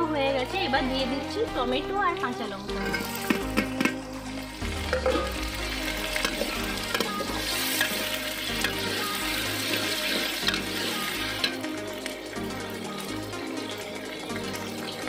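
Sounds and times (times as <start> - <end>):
background music: 0.0 - 15.0
vegetables sizzling in oil: 2.3 - 15.0
metal spatula scraping pot: 2.7 - 4.1, 6.1 - 11.6.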